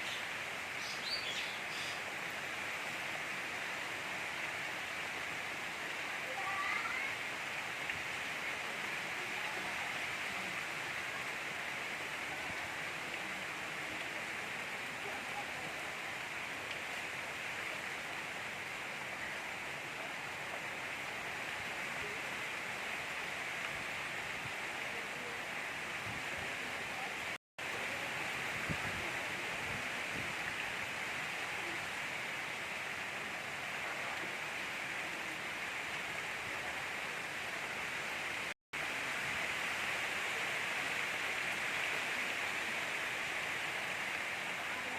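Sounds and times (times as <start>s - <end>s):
gentle rain falling: 0.0s - 44.9s.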